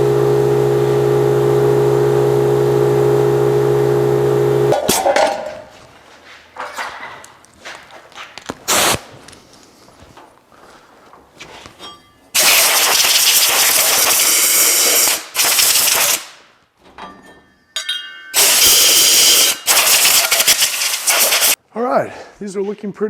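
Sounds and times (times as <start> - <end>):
sandblaster hissing: 8.7 - 9.0, 12.4 - 16.3, 18.4 - 21.6.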